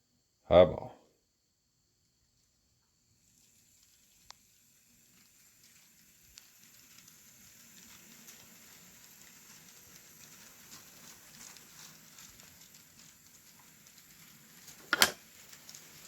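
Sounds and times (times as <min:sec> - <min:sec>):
model train wheels clicking: 0:03.2 - 0:16.0.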